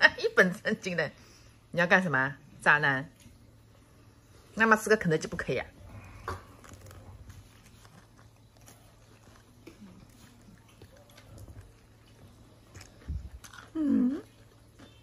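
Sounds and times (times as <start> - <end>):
person chewing and biting: 6.0 - 15.0.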